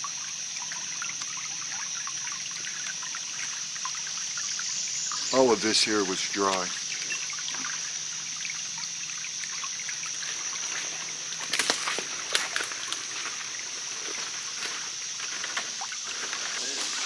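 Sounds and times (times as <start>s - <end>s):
water trickling: 0.0s - 17.0s
steady high whine: 16.2s - 17.0s.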